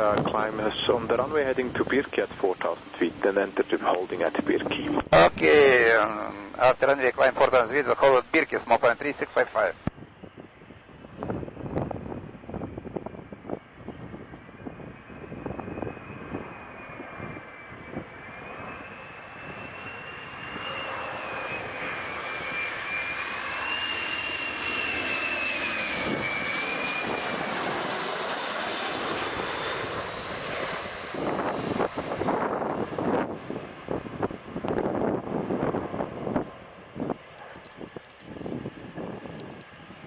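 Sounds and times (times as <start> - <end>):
wind buffeting microphone: 0.0 - 5.4, 9.8 - 18.6, 25.8 - 40.0
jet engines whining: 0.0 - 40.0.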